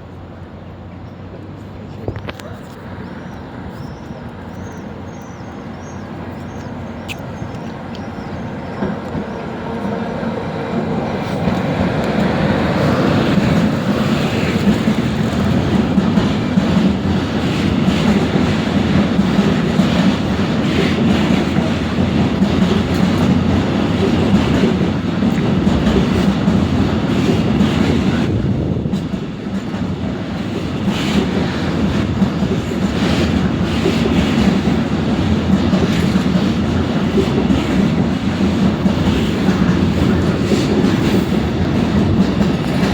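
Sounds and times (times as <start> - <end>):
train wheels clattering over rails: 1.0 - 42.9.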